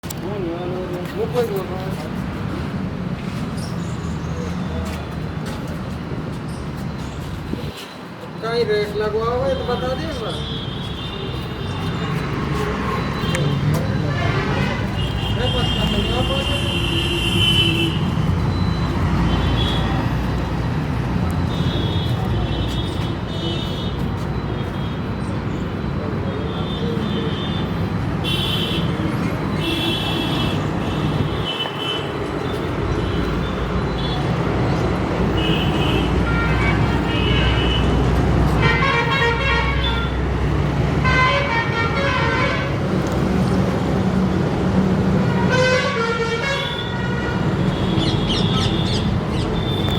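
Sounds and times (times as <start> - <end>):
car horn toots: 38.6 - 40.2.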